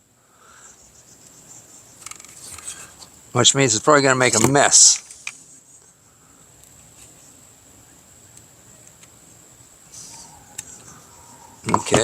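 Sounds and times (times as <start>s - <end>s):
light clicks of handled parts: 2.0s - 3.1s, 4.3s - 5.5s, 8.3s - 9.2s
high-pitched insect drone: 9.5s - 12.0s.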